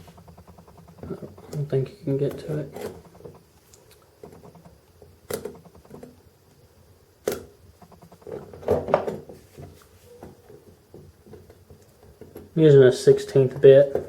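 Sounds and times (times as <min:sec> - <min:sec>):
knocks and clatter: 0:00.0 - 0:03.5, 0:04.2 - 0:06.2, 0:07.3 - 0:09.4.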